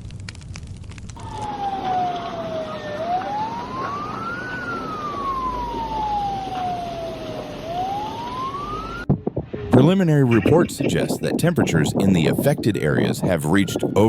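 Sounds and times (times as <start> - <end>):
siren wailing: 1.2 - 9.1, 13.0 - 14.0.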